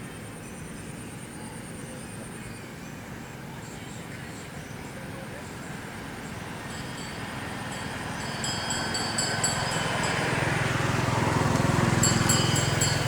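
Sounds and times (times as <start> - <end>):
motor engine approaching: 5.8 - 13.0.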